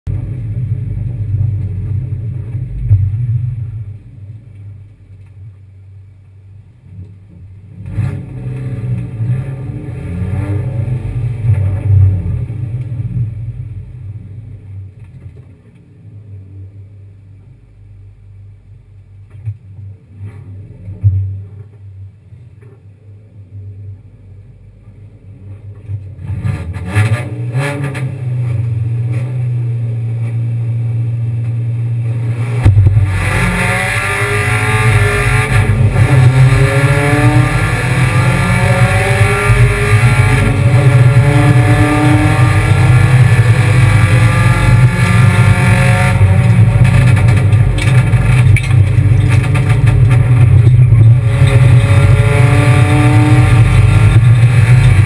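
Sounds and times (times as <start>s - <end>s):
car engine revving: 6.9s - 14.7s, 25.5s - 55.0s.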